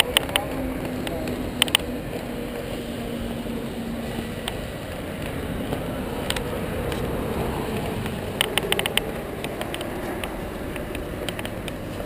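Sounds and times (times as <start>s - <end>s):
sharp clicks: 0.0s - 1.9s, 7.7s - 11.8s
race car engines rumbling: 0.0s - 12.0s.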